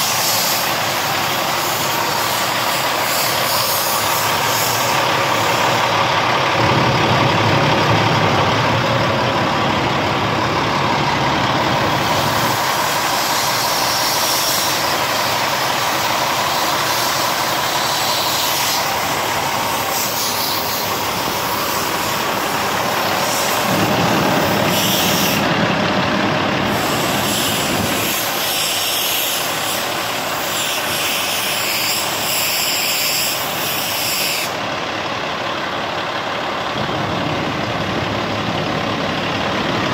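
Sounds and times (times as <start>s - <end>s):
diesel truck engine running: 0.0s - 39.9s
air brake hisses: 26.7s - 34.6s.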